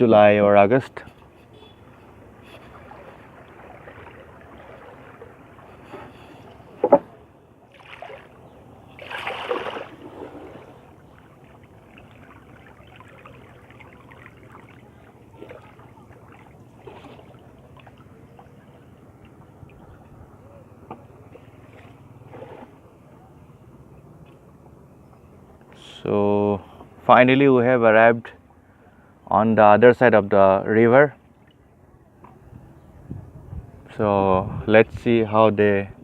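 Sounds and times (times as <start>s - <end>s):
water noise: 0.0s - 25.7s
boat engine hum: 0.0s - 34.0s.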